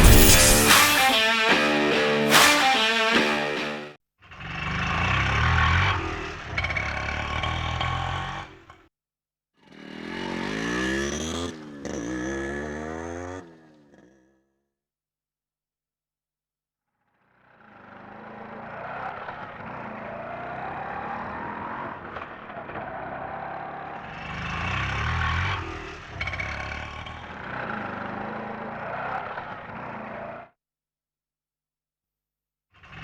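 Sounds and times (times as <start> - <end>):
rattling auto rickshaw engine: 4.4 - 8.7, 17.6 - 30.1.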